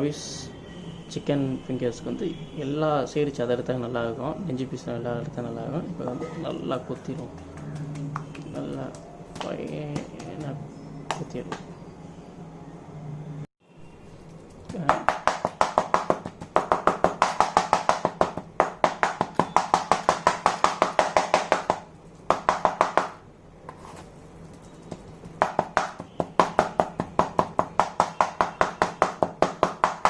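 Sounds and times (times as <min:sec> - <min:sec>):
knife chopping on cutting board: 0:14.7 - 0:24.0, 0:24.9 - 0:30.0.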